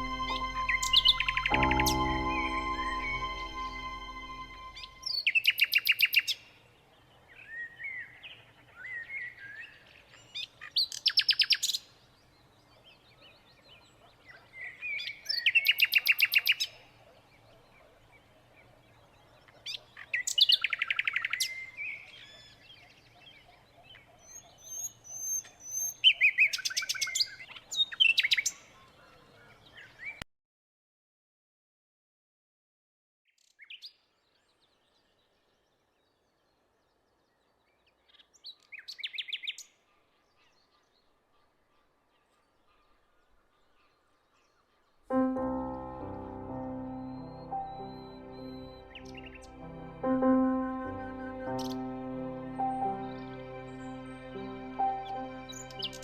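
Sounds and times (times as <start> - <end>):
held musical chord: 0.0 - 5.1, 45.1 - 56.0
soft bird chirps: 46.6 - 49.8.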